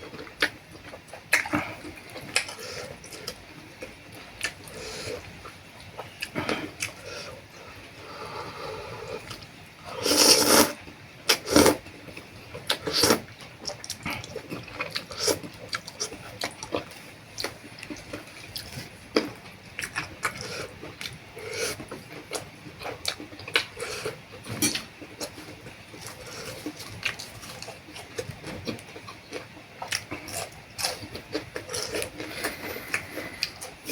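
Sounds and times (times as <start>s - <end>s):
person slurping noodle soup: 9.9s - 11.8s, 12.8s - 13.2s.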